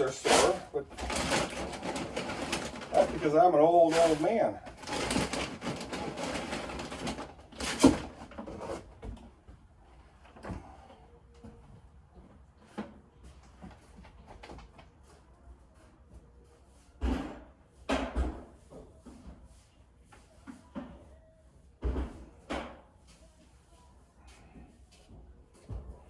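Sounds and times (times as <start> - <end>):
rustling: 0.0 - 8.8.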